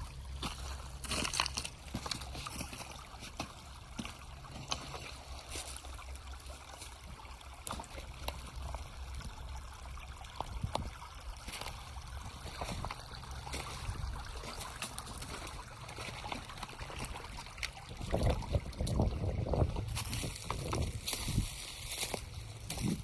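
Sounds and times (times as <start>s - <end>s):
creek water trickling: 0.0s - 23.0s
low thumps and rustling: 18.0s - 23.0s.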